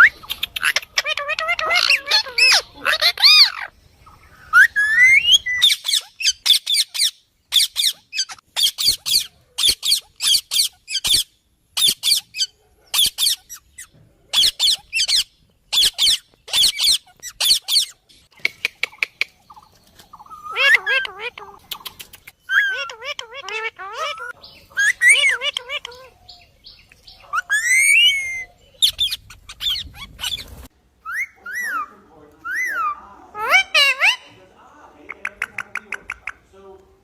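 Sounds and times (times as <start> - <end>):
parakeet squawking and whistling: 0.0 - 3.7, 4.4 - 18.0, 20.2 - 21.6, 22.4 - 26.2, 27.2 - 34.3.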